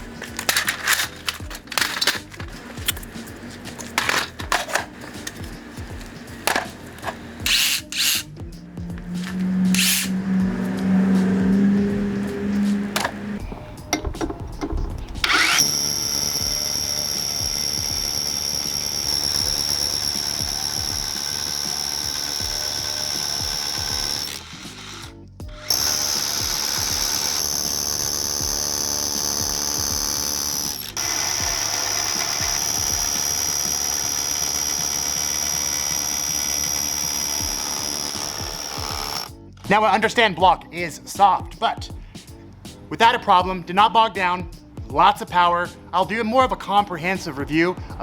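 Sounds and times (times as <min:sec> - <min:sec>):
rotary hammer drilling into concrete: 0:00.0 - 0:10.2, 0:15.0 - 0:39.4.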